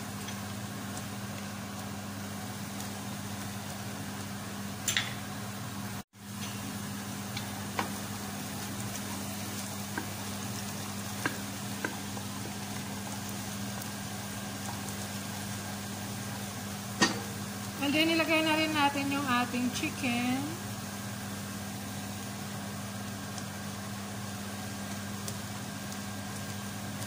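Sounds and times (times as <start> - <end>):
onion sizzling in hot oil: 0.0 - 27.0.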